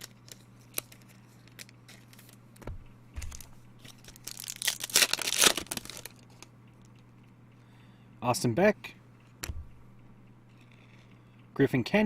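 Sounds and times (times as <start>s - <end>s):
wrapper crinkling and tearing: 0.0s - 2.4s, 3.2s - 6.5s
low steady hum: 0.0s - 12.0s.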